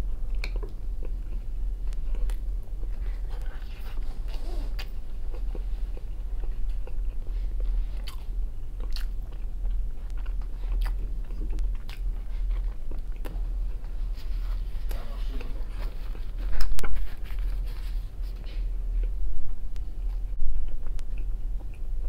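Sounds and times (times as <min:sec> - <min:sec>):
low steady hum: 0:00.0 - 0:22.0
man chewing food: 0:00.0 - 0:22.0.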